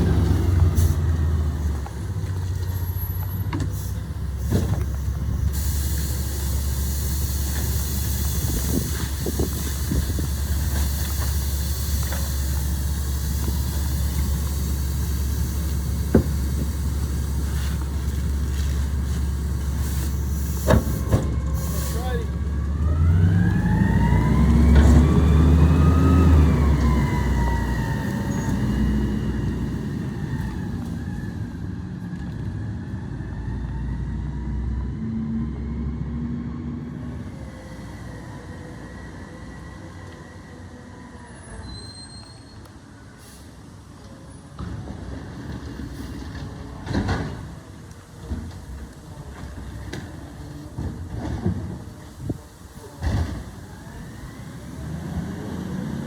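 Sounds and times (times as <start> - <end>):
garbage truck engine revving: 0.0 - 2.4, 4.3 - 31.1, 53.0 - 56.0
engine whine rising and falling: 21.1 - 37.3.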